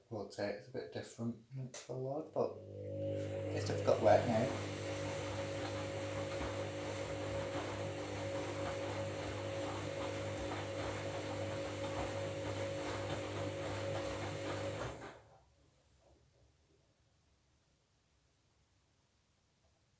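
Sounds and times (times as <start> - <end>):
washing machine motor hum: 2.4 - 15.3
water and laundry sloshing: 2.8 - 15.1.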